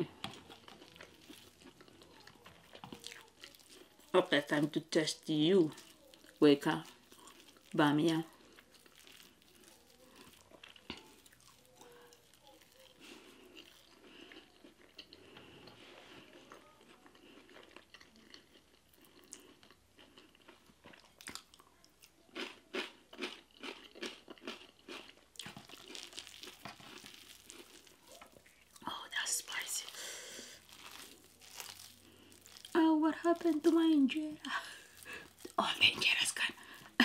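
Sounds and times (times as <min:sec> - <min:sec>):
chewing and mouth sounds: 0:00.0 - 0:04.6, 0:05.6 - 0:37.0.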